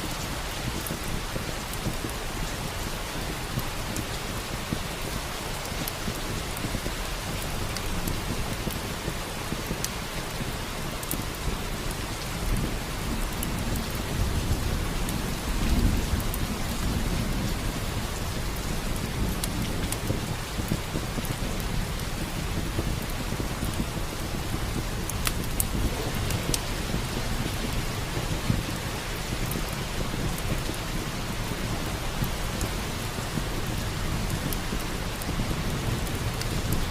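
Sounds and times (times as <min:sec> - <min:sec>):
heavy rain: 0:00.0 - 0:36.9
log fire crackling: 0:00.0 - 0:36.9
thunder rumble: 0:12.5 - 0:36.9.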